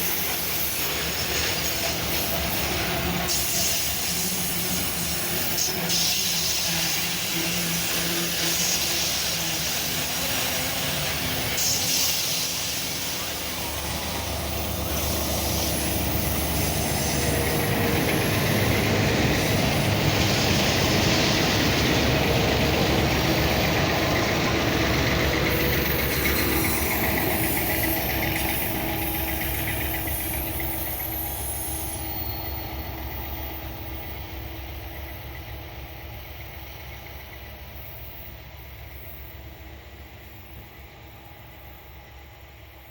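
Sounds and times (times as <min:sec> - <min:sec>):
freight train rolling past: 0:00.0 - 0:42.9
steel wheels on rails: 0:00.0 - 0:42.9.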